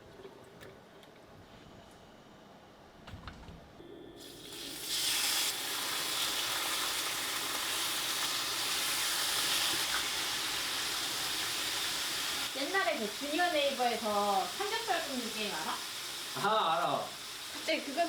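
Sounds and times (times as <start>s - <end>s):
pork sizzling in a pan: 4.2s - 18.0s.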